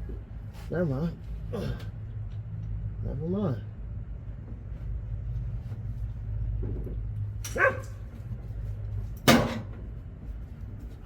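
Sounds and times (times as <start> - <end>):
dog barking: 7.5 - 8.0.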